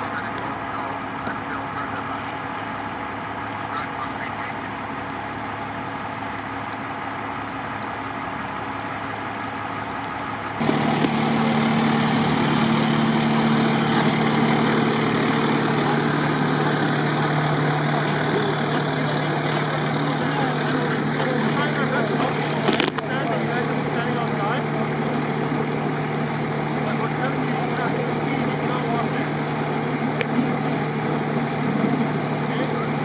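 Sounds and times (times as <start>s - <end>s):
vehicle engine idling: 0.0s - 33.0s.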